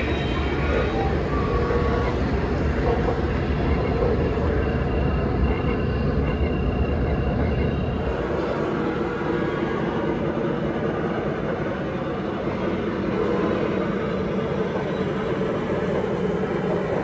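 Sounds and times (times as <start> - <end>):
model train wheels rumbling on track: 0.0 - 5.5.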